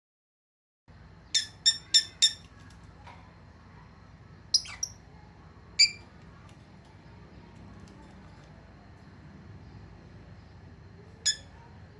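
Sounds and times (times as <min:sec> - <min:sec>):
lovebird chirping: 0:01.2 - 0:02.5, 0:04.5 - 0:05.0, 0:05.8 - 0:06.1, 0:11.2 - 0:11.7.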